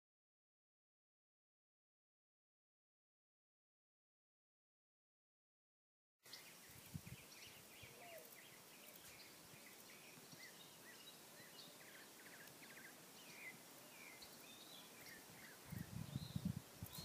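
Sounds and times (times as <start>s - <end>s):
small birds chirping: 6.2s - 17.0s
steady low hiss: 6.3s - 17.0s.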